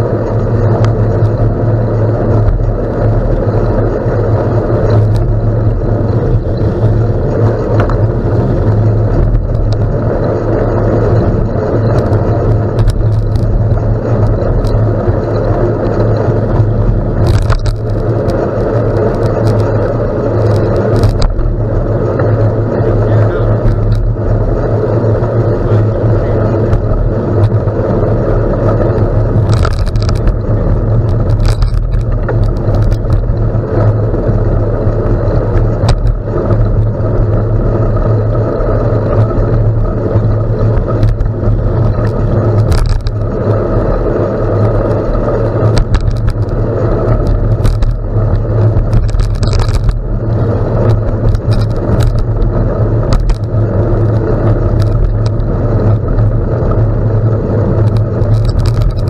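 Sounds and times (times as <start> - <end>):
bicycle tyres rumbling on gravel: 0.0 - 59.0
wind on microphone: 0.0 - 59.0
clicks and rattles: 4.8 - 59.0.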